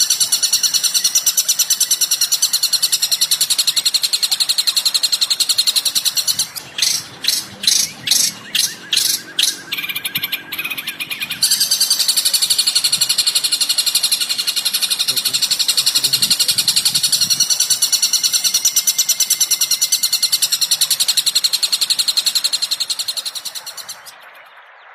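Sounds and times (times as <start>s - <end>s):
bird chattering trill: 0.0s - 24.3s
low buzzy bird calls: 0.0s - 24.9s.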